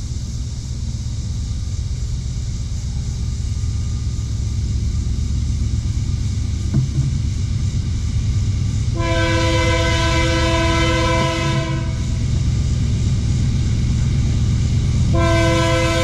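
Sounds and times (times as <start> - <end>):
train rumble: 0.0 - 16.0
locomotive air horn blast: 8.9 - 12.2, 15.1 - 16.0.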